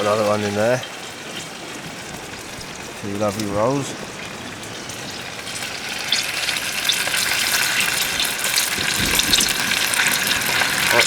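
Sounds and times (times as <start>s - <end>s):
burgers sizzling: 0.0s - 11.0s.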